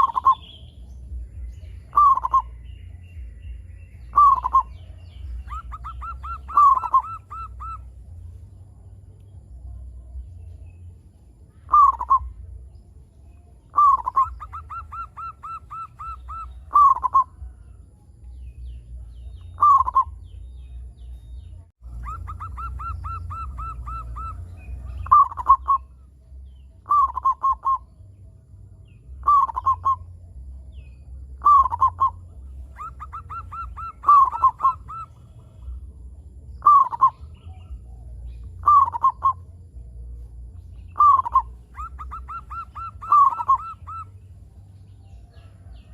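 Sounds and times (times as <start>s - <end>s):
dove cooing: 0.0s - 0.6s, 1.8s - 2.6s, 4.1s - 8.1s, 11.7s - 12.4s, 13.7s - 17.6s, 19.5s - 20.2s, 21.9s - 26.1s, 26.8s - 27.9s, 29.2s - 30.1s, 31.4s - 35.8s, 36.6s - 39.5s, 40.9s - 44.2s
low rumble: 0.0s - 14.6s, 15.9s - 45.9s.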